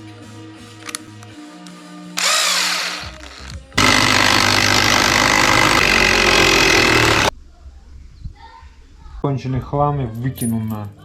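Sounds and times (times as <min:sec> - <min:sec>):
impact driver running: 0:02.2 - 0:07.3.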